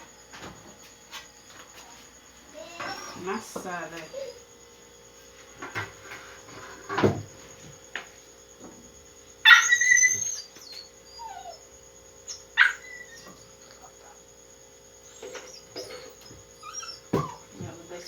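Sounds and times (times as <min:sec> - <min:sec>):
dog yelping: 0:09.4 - 0:13.9, 0:15.0 - 0:17.6.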